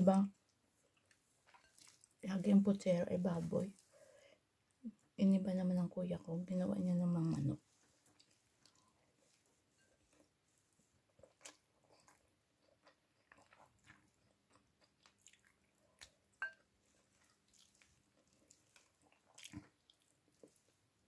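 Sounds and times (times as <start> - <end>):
chewing and mouth sounds: 0.9 - 2.2, 8.0 - 10.3, 11.1 - 20.8.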